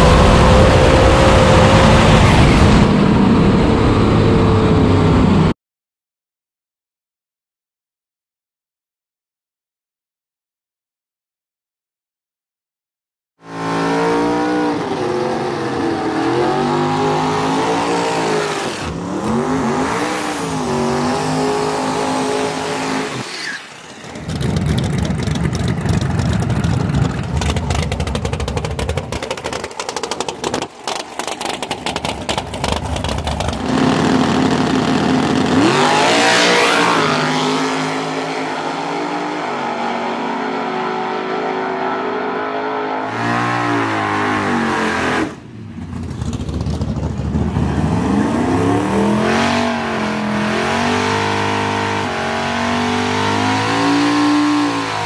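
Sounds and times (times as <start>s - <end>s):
race car engines revving: 0.0s - 5.5s, 13.4s - 55.0s
full-throttle engine run: 23.8s - 38.8s, 45.0s - 55.0s.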